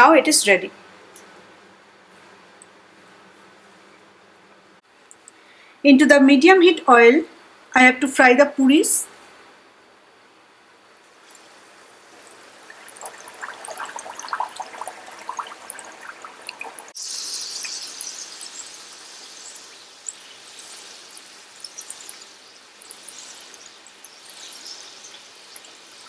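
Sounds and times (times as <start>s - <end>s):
food frying in bubbling oil: 11.0s - 26.0s
loud hiss and sizzle: 11.2s - 26.0s.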